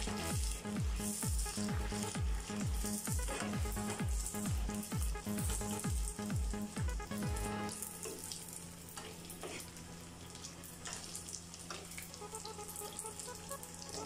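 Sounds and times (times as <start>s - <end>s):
spatula strokes: 0.0s - 6.0s, 8.9s - 9.8s
puris sizzling in hot oil: 0.0s - 14.0s.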